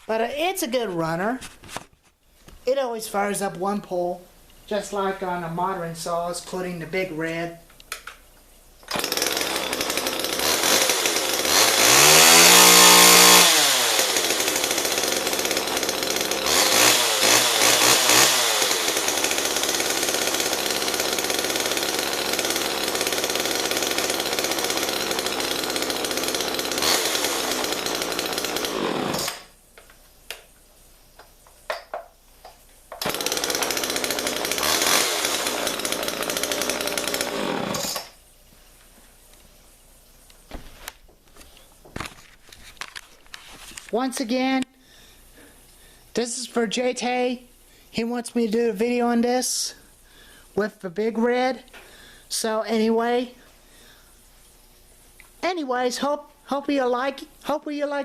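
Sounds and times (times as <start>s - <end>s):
chainsaw running: 8.9s - 29.6s, 32.9s - 38.2s.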